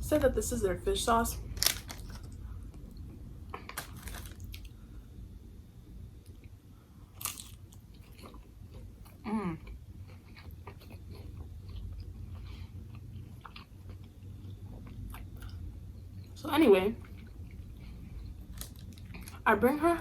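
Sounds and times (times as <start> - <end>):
biting crunch: 3.6 - 4.7, 7.2 - 8.4.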